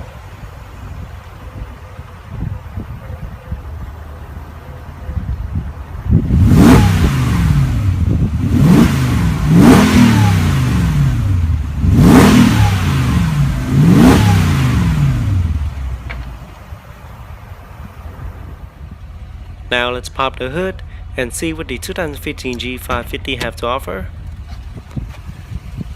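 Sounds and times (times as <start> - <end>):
car engine revving: 5.5 - 25.9.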